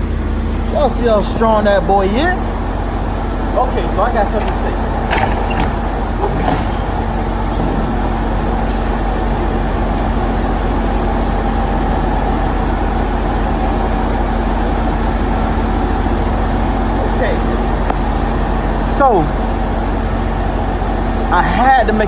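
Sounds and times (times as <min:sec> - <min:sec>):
diesel engine idling: 0:00.0 - 0:22.0
short knocks: 0:04.2 - 0:10.5.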